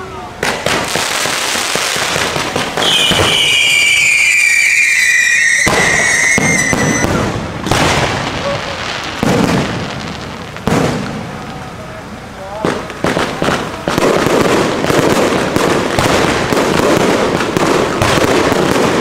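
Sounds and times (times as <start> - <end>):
firework whistle: 0.0 - 11.1
firework bursts: 0.0 - 19.0.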